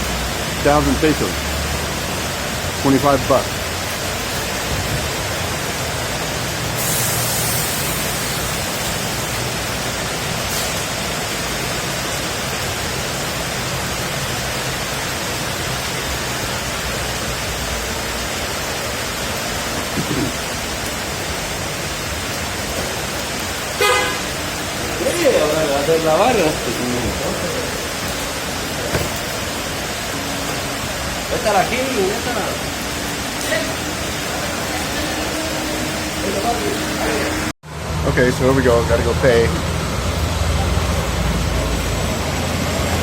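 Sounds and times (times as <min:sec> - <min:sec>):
heavy rain falling: 0:00.0 - 0:43.0.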